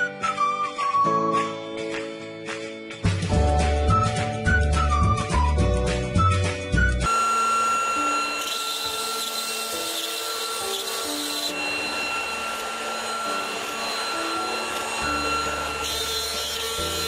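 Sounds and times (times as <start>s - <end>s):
bit rasping through wood: 7.1s - 17.0s
router spindle high whine: 7.1s - 17.0s.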